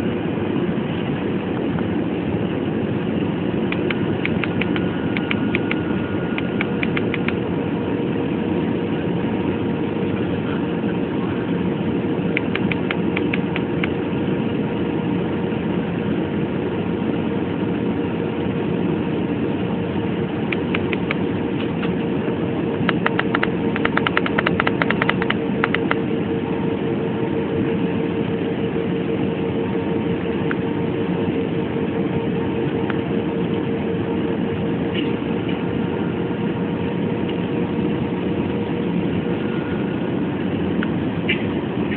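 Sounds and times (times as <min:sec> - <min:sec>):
jet airliner cabin noise: 0:00.0 - 0:41.9
rapid faint clicking: 0:22.9 - 0:26.0.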